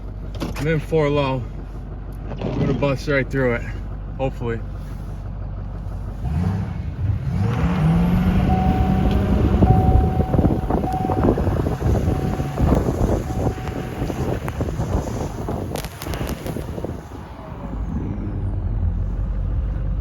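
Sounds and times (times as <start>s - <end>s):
packed snow striking truck: 0.0s - 17.9s
pickup truck engine revving: 6.1s - 20.0s.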